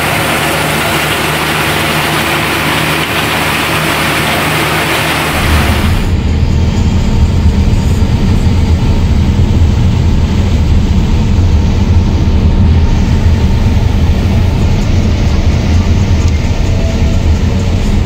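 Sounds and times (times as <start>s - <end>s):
diesel engines running under load: 0.0s - 18.0s.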